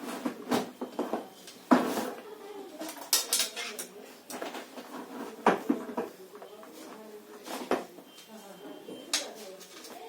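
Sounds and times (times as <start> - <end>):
metal tools clinking and knocking: 2.9 - 4.4.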